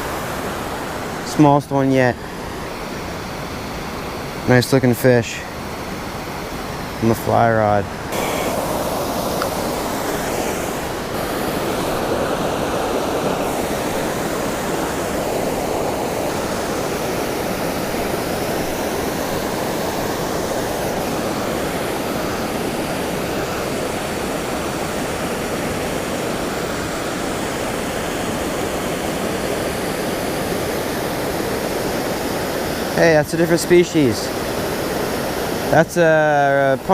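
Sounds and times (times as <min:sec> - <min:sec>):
waterfall rushing into pool: 0:00.0 - 0:36.9.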